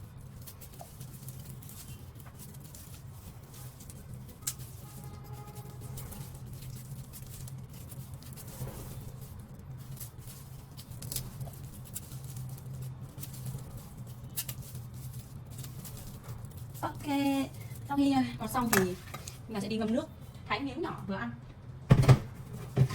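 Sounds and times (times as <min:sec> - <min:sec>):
knife scraping and clicking: 0:18.6 - 0:19.4.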